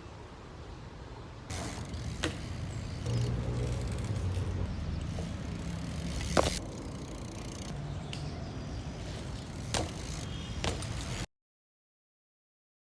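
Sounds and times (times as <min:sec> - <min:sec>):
low outdoor rumble: 0:01.5 - 0:11.2.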